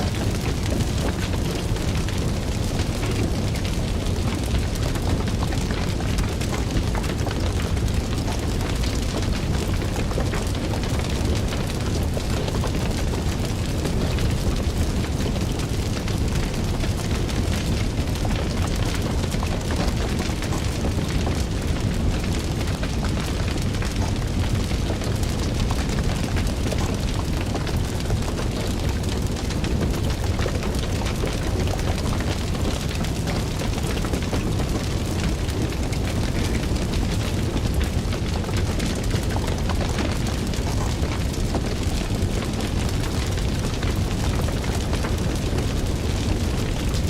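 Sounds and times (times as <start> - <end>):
fire crackling: 0.0 - 47.0.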